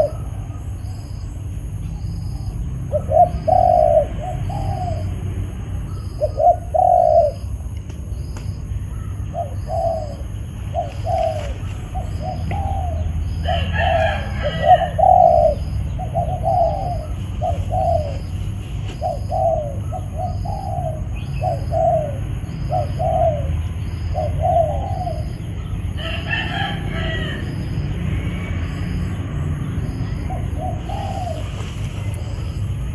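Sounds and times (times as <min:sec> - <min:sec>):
dove cooing: 0:00.0 - 0:00.6, 0:02.4 - 0:05.2, 0:06.0 - 0:07.6, 0:08.9 - 0:27.5, 0:30.2 - 0:32.9.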